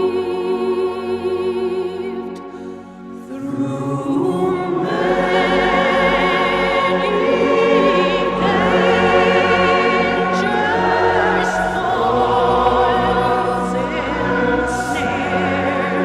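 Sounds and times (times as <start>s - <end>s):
musical accompaniment: 0.0s - 16.0s
choir singing held notes: 3.2s - 16.0s.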